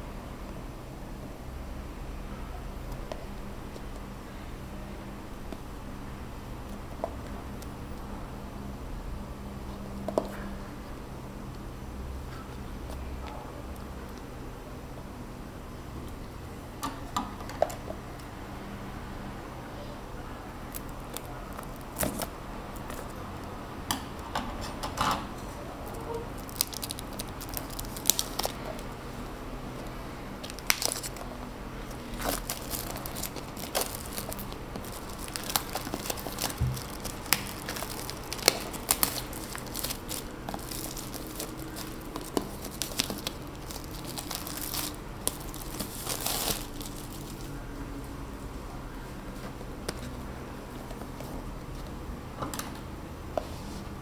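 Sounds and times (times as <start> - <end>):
packaging crinkling and tearing: 20.7 - 23.2, 25.8 - 29.0, 29.8 - 47.5.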